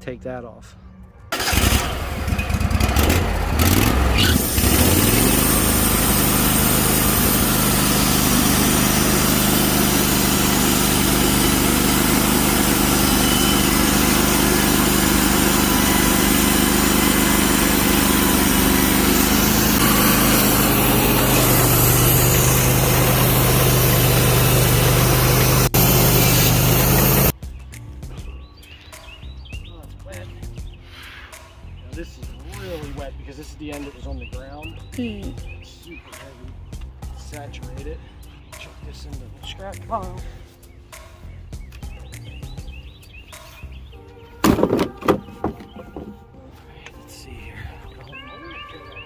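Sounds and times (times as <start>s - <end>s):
sawmill engine speeding up: 1.4s - 27.4s
band saw cutting log: 2.6s - 27.4s, 32.3s - 33.2s.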